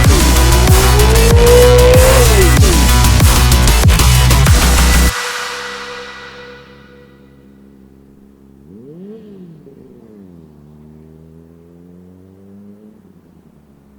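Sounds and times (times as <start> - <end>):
electronic music: 0.0 - 7.4
motorcycle engine idling and revving: 0.0 - 13.9.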